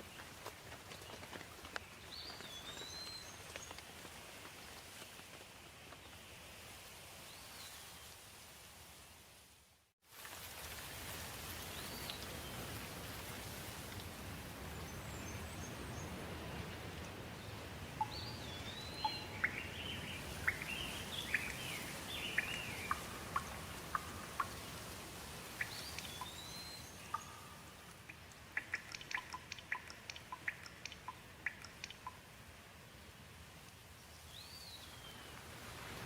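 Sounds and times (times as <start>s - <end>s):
steady rain: 0.0s - 36.0s
birds calling: 17.0s - 24.9s, 25.5s - 32.2s
single raindrops plinking: 18.0s - 24.9s, 25.5s - 32.4s.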